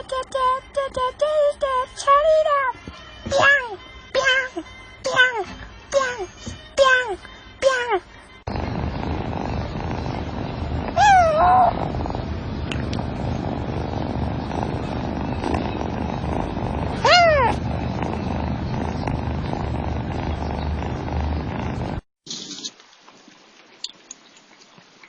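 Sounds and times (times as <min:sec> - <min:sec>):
low hum: 0:08.5 - 0:22.0
cat meowing: 0:10.9 - 0:11.9, 0:17.0 - 0:17.6.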